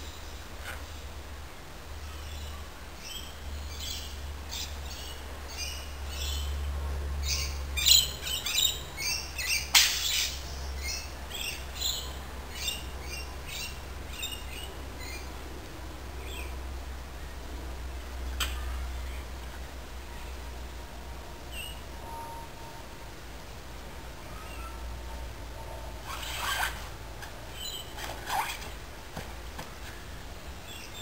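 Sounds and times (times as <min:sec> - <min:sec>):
birds chirping: 0:27.5 - 0:28.7.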